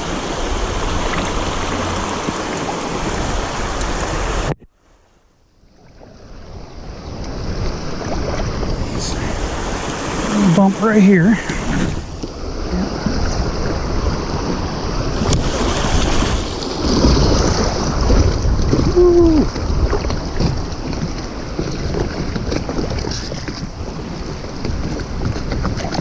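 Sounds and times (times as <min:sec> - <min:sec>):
rushing water: 0:00.0 - 0:26.0
wind rumble on microphone: 0:05.5 - 0:26.0
man saying ooh: 0:18.9 - 0:19.5.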